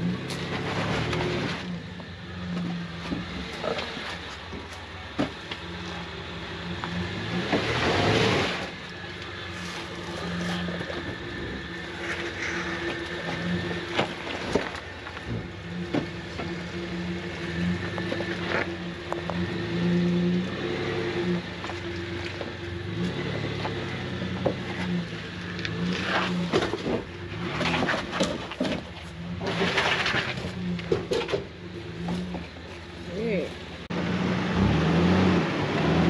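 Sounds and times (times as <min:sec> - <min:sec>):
off-road vehicle engine running: 0:00.0 - 0:36.0
knocks and clunks: 0:02.5 - 0:06.0, 0:09.9 - 0:16.8, 0:21.6 - 0:32.7.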